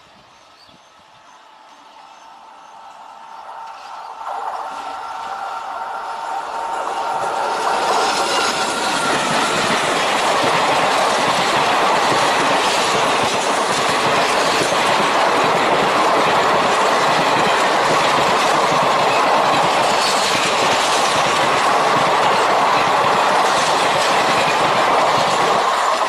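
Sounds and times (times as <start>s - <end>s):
train wheels clattering on rails: 3.6s - 26.0s.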